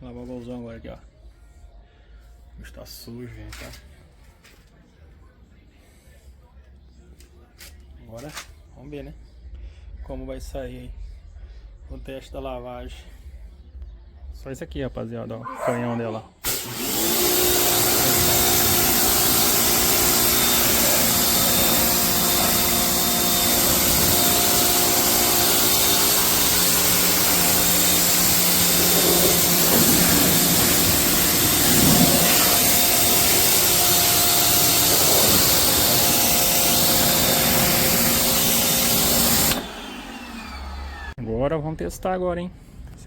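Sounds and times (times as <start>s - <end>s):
pressure washer motor hum: 16.4s - 41.2s
water jet spraying hiss: 16.9s - 39.6s.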